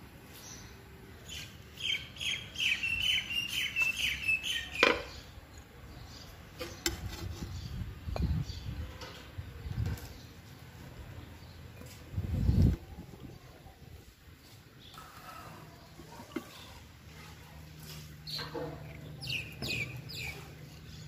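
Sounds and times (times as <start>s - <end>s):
bird chirping: 0.4s - 9.3s, 18.2s - 21.0s.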